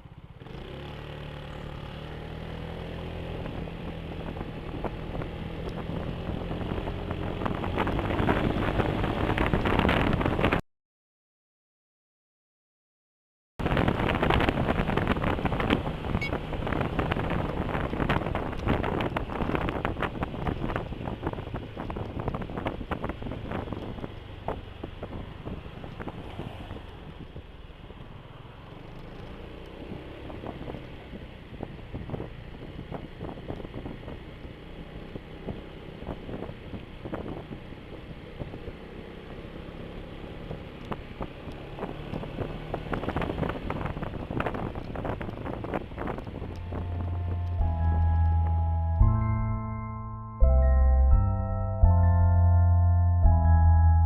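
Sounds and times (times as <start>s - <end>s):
scooter engine: 0.0s - 10.5s, 13.7s - 48.1s
wind rushing over microphone: 2.3s - 10.6s, 13.6s - 49.4s.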